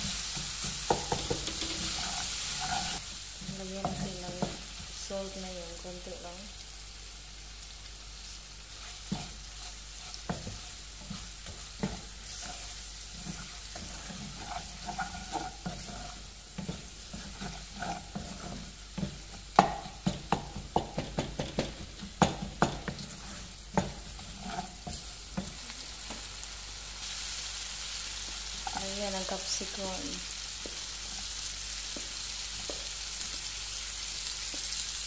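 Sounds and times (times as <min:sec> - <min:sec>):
wooden spatula scraping a pan: 0:00.0 - 0:04.9, 0:08.7 - 0:25.7
onions frying in oil sizzling: 0:00.0 - 0:35.0
spatula knocking against pan: 0:00.6 - 0:01.8, 0:19.0 - 0:23.0.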